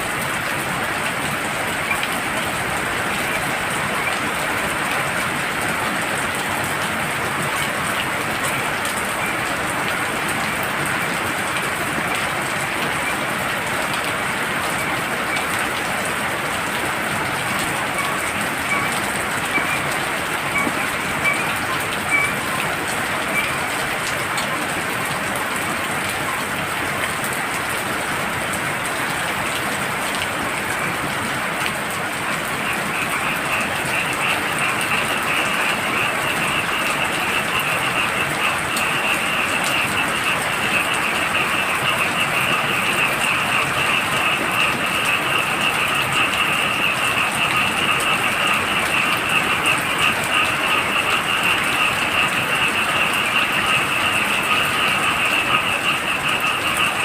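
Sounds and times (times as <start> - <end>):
heavy rain: 0.0 - 57.0
frogs calling in pulsing trill: 16.5 - 24.1, 32.2 - 57.0.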